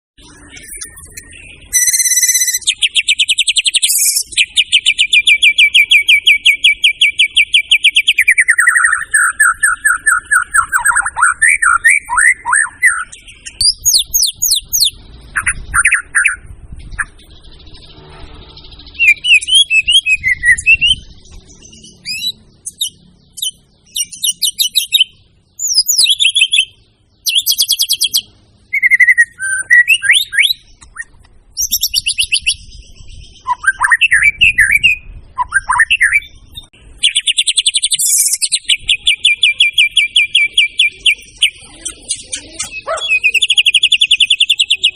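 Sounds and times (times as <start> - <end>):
songbird singing trills and whistles: 0.2 - 44.9.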